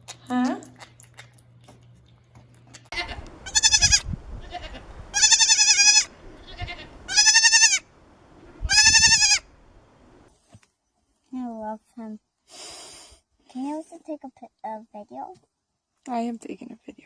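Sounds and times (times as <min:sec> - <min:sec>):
goat bleating: 0:02.9 - 0:07.8, 0:08.7 - 0:09.5.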